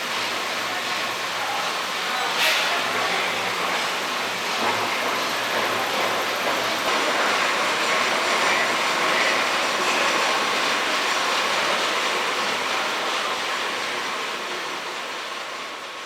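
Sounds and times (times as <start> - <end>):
power loom clattering: 2.4 - 13.4.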